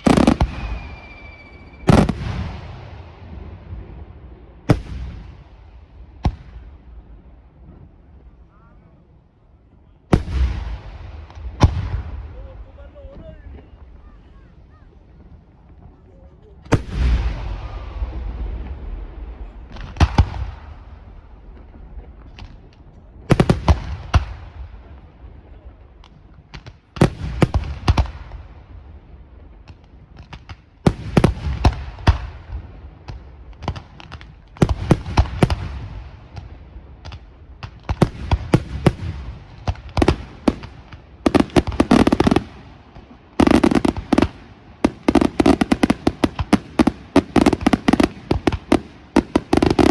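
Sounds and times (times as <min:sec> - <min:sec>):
fireworks bangs and cracks: 0:00.0 - 0:08.4, 0:10.0 - 0:14.4, 0:15.2 - 0:49.9
rumbling echo: 0:16.8 - 0:22.5.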